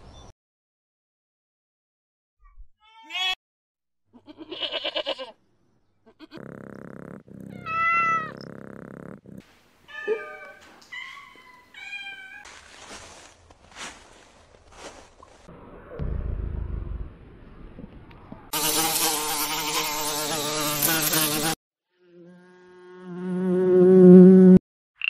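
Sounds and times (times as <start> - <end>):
goat bleating: 4.1 - 5.4, 6.0 - 6.4, 7.5 - 8.4
kittens mewing: 6.1 - 12.4
cat meowing: 7.5 - 8.4, 9.9 - 12.4.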